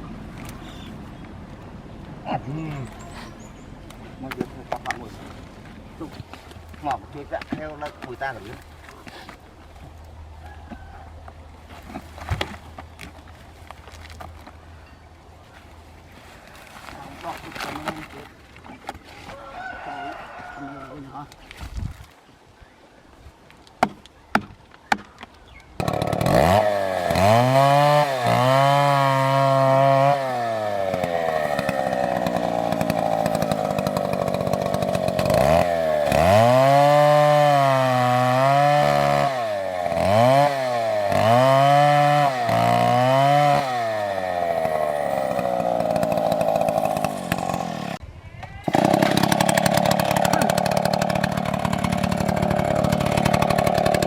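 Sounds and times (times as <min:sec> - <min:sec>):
chainsaw revving: 0:25.8 - 0:48.0, 0:48.6 - 0:54.0.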